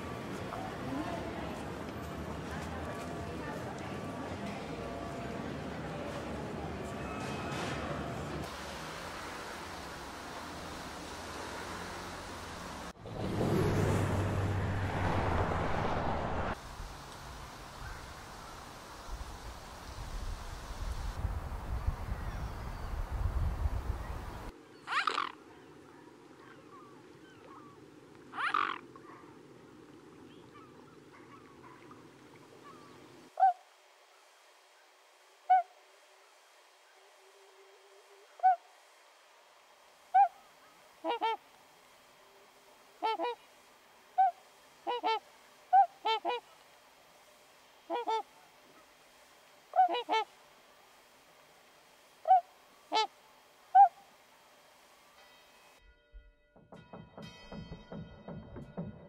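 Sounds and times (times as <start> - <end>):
bird short calls: 24.8 - 25.4, 28.3 - 29.3.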